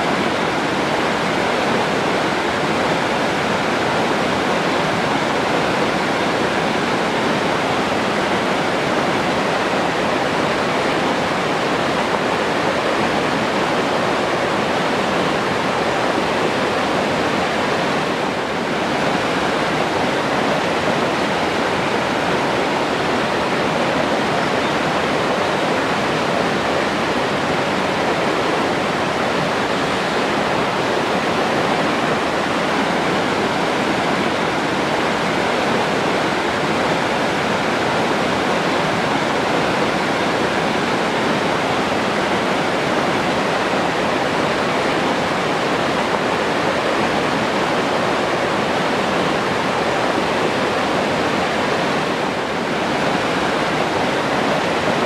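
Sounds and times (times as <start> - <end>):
stream flowing over rocks: 0.0 - 55.0.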